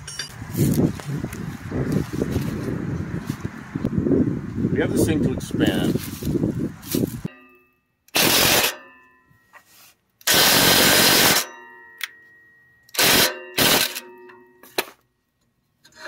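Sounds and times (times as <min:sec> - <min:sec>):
metal exhaust pipe ringing: 0:07.3 - 0:09.6, 0:11.2 - 0:14.8.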